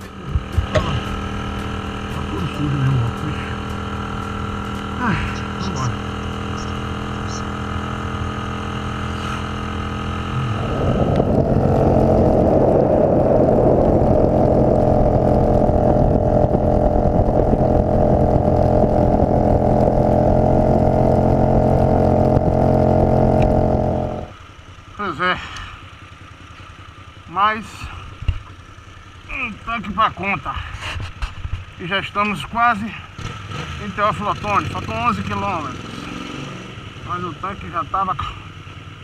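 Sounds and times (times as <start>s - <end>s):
motorcycle engine running: 0.0s - 39.0s
wind noise on microphone: 10.4s - 20.4s.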